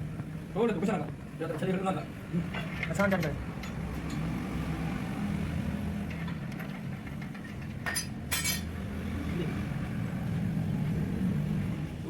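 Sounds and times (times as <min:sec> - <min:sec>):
metal tools clinking: 0:06.1 - 0:08.7.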